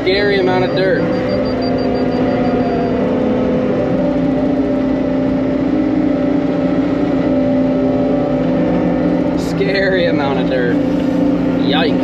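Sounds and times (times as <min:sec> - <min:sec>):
heavy machine engine running: 0:00.0 - 0:12.0.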